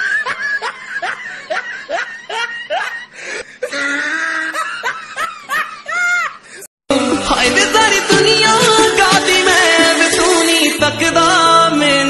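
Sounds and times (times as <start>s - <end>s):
woman laughing: 0.0s - 6.5s.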